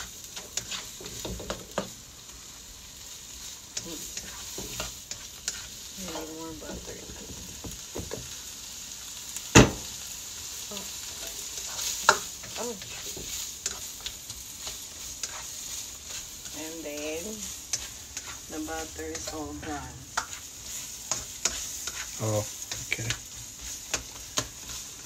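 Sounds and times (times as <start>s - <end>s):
spatula stirring and scraping: 0.0s - 8.4s, 10.0s - 25.0s
food sizzling in butter: 0.0s - 25.0s.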